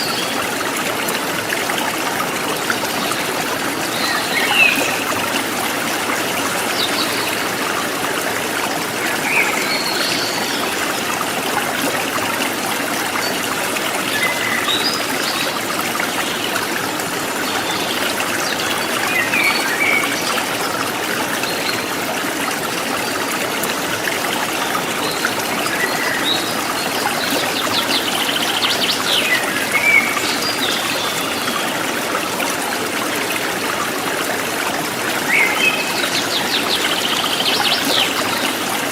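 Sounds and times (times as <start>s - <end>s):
river flowing over stones: 0.0s - 38.9s.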